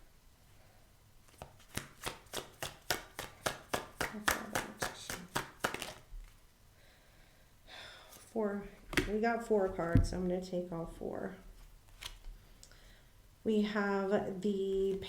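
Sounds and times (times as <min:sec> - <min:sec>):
cards being shuffled: 0:01.2 - 0:06.4, 0:11.6 - 0:12.4.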